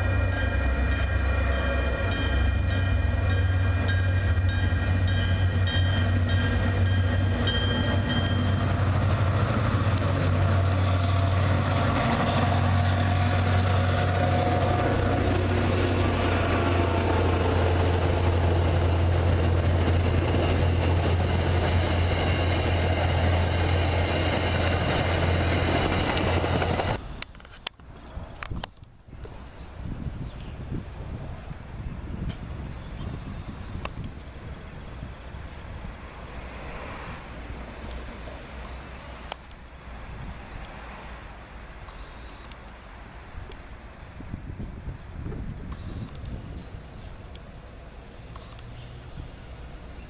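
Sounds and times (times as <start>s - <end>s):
crossing bell dinging: 0.0s - 9.1s
diesel locomotive engine drone: 0.0s - 27.8s, 30.8s - 50.0s
train wheels on rails: 0.0s - 27.8s.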